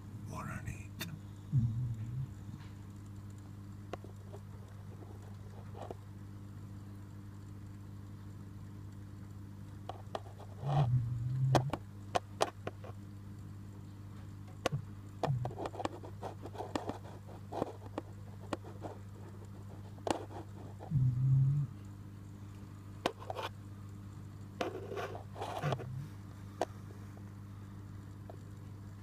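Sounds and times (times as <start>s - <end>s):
low electrical hum: 0.0s - 29.0s
light scraping: 24.6s - 27.3s.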